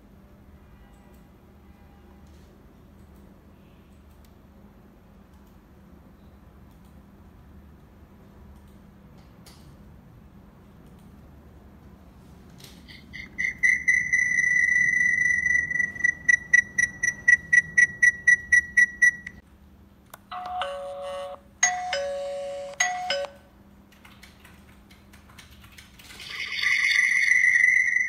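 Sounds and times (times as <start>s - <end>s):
high steady electronic tone: 12.9s - 19.4s
rapid beeping: 12.9s - 19.4s.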